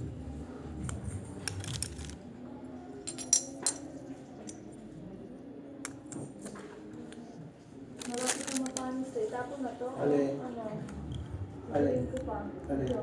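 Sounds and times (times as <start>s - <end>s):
small hard objects clicking: 1.5s - 2.2s.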